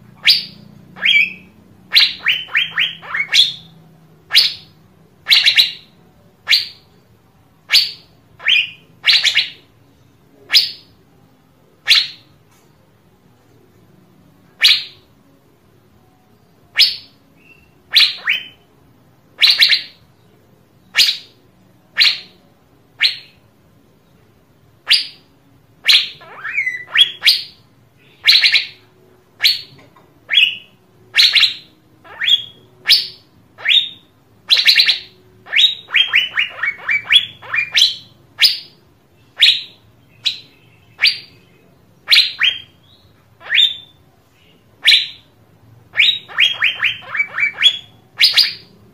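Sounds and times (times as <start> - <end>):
bird whistled calls: 0.2 - 6.8, 7.7 - 9.7, 11.8 - 12.2, 16.7 - 18.6, 19.4 - 20.0, 20.9 - 21.4, 22.0 - 22.4, 23.0 - 23.4, 24.8 - 28.8, 29.4 - 45.3, 45.9 - 48.8.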